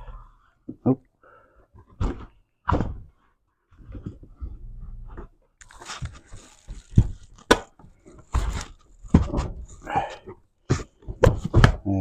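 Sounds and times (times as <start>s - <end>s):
rubbing scrapes: 5.6s - 7.4s.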